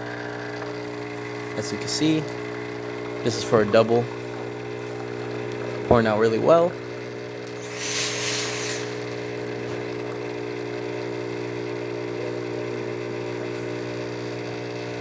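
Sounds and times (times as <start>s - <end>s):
espresso machine pump buzzing: 0.0s - 15.0s
short hiss: 7.5s - 9.4s.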